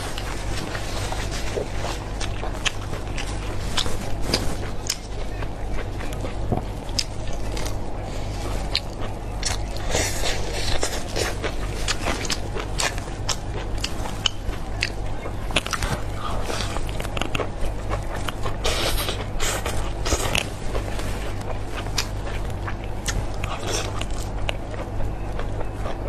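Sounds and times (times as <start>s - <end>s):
biting and chewing food: 0.0s - 26.0s.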